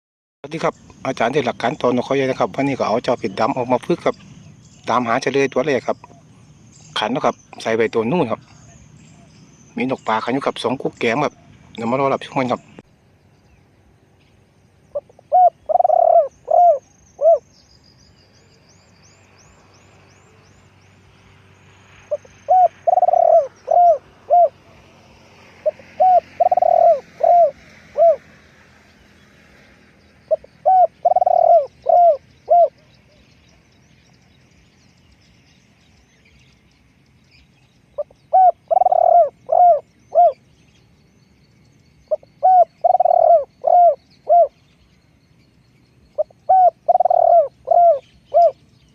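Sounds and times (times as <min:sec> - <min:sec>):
small birds chirping: 0:00.4 - 0:48.9
dove cooing: 0:14.9 - 0:17.4, 0:22.1 - 0:25.0, 0:25.6 - 0:28.4, 0:30.3 - 0:33.2, 0:38.0 - 0:40.4, 0:42.1 - 0:44.6, 0:46.2 - 0:48.7.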